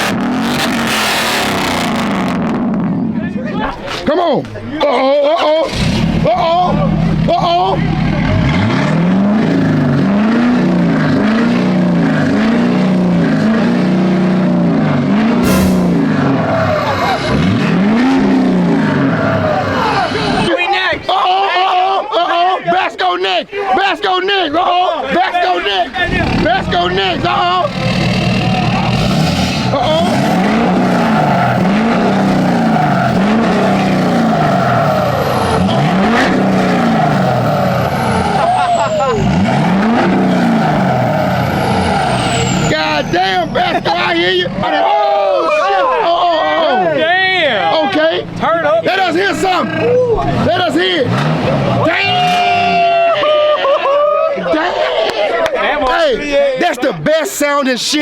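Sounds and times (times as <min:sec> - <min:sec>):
truck engine revving: 0:00.0 - 0:03.1, 0:05.6 - 0:20.5, 0:25.9 - 0:53.0.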